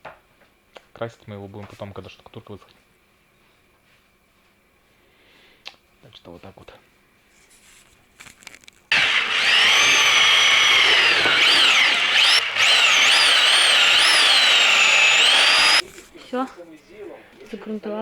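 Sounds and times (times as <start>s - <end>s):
power tool motor whining: 8.9s - 15.8s.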